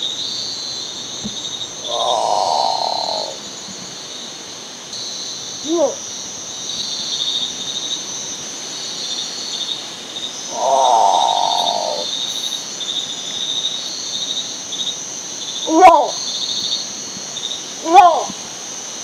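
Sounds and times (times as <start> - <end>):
insects chorus: 0.0 - 19.0
bird calling: 1.2 - 3.4, 10.5 - 12.6.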